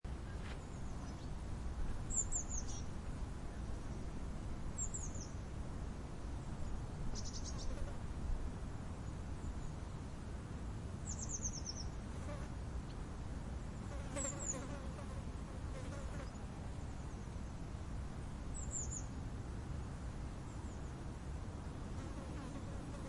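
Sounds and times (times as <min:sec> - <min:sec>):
faint insect buzz: 0:06.5 - 0:08.2, 0:11.0 - 0:12.6, 0:13.6 - 0:17.6, 0:20.2 - 0:23.0.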